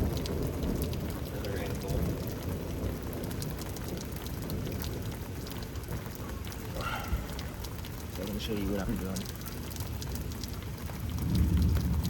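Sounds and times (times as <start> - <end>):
rain drop ticks: 0.0 - 12.0
steady rain falling: 0.0 - 12.0.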